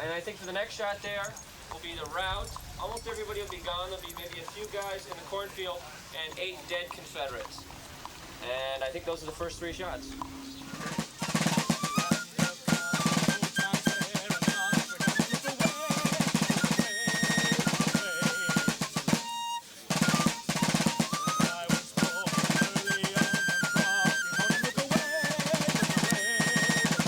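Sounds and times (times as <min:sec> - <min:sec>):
marching snare drum rolls: 0:10.6 - 0:27.0
high fife melody: 0:10.7 - 0:27.0.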